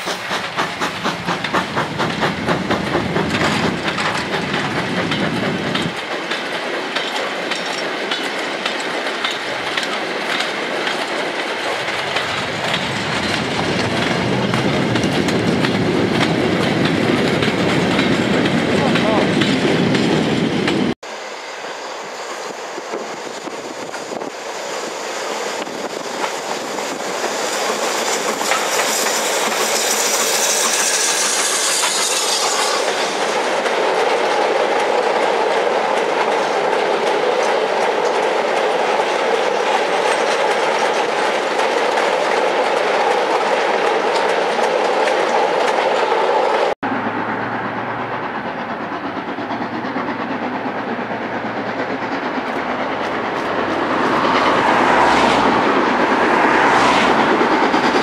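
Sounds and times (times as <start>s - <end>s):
steam train hissing: 0.0s - 46.8s, 47.8s - 58.0s
distant train running: 0.0s - 58.0s.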